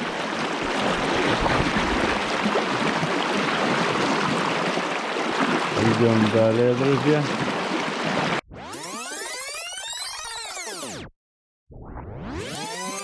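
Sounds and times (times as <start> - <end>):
river rushing: 0.0 - 8.4.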